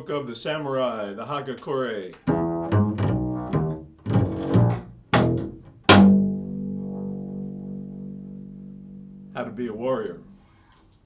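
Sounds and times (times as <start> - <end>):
plucked bass strings: 2.3 - 10.4.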